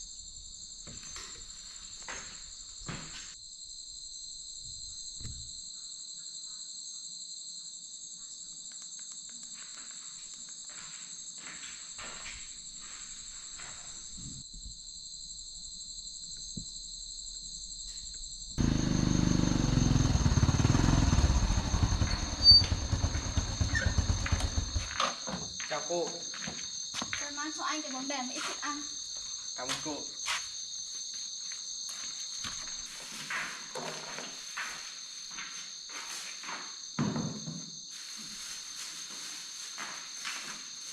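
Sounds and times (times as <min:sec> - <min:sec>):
crickets and insects chirring: 0:00.0 - 0:40.9.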